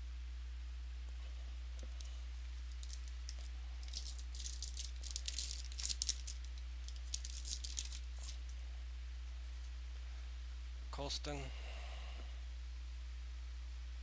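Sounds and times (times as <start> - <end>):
steady low hum: 0.0 - 14.0
cards clicking and wrapping crinkling: 1.8 - 8.6.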